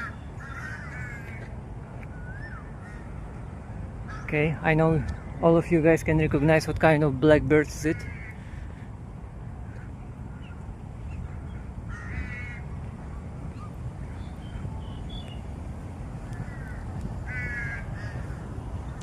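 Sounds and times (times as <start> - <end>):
crow cawing: 0.0 - 1.5, 2.3 - 3.1, 4.1 - 4.3, 7.9 - 8.8, 11.2 - 12.6, 16.4 - 19.0.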